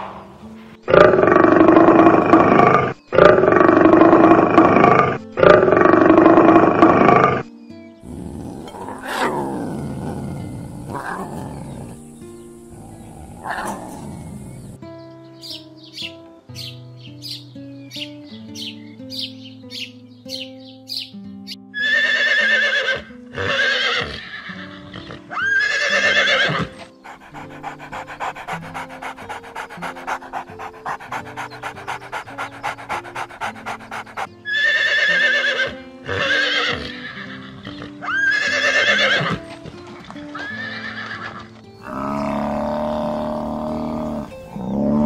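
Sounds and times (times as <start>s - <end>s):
background music: 0.0s - 45.0s
horse neighing: 8.0s - 14.8s, 21.8s - 39.4s, 40.4s - 45.0s
fast rhythmic pulses: 27.0s - 34.3s.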